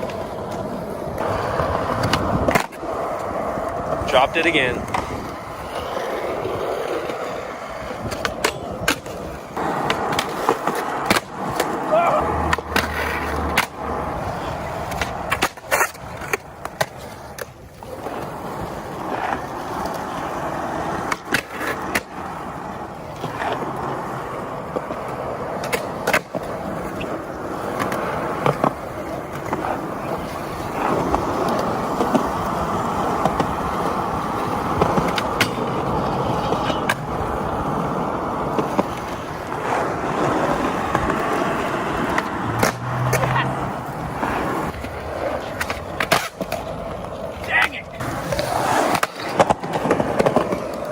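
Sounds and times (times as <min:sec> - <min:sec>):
skateboard clacking on ground: 0:00.0 - 0:50.9
skateboard wheels rolling: 0:00.0 - 0:50.9.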